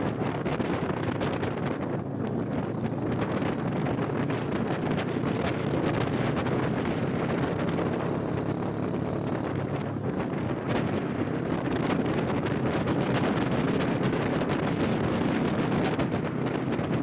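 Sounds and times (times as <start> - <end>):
motorcycle engine running: 0.0 - 17.0
wind noise on microphone: 0.0 - 17.0.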